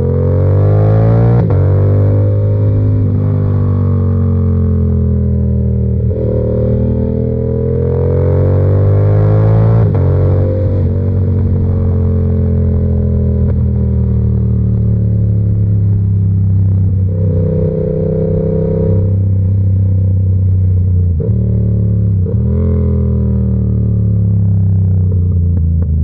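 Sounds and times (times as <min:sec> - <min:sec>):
motorcycle engine running: 0:01.4 - 0:26.0.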